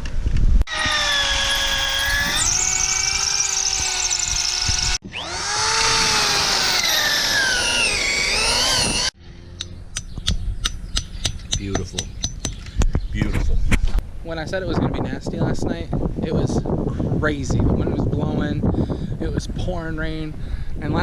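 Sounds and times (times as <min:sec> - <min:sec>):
electric drill boring: 0:00.7 - 0:09.2.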